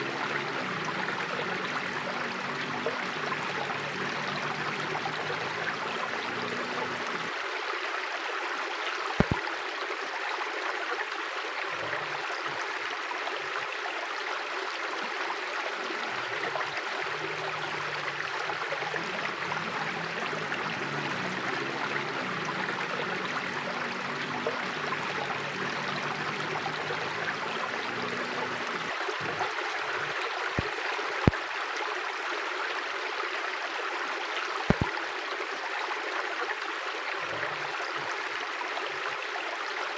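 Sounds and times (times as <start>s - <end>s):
river flowing over stones: 0.0s - 39.9s
sharp clicks: 9.2s - 9.4s, 34.7s - 34.9s.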